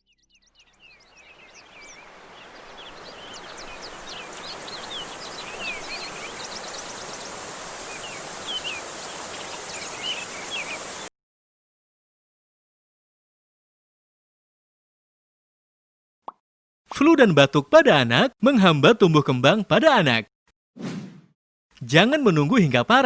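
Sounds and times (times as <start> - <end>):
birds chirping: 0.0 - 11.1
steady outdoor hiss: 0.8 - 11.1.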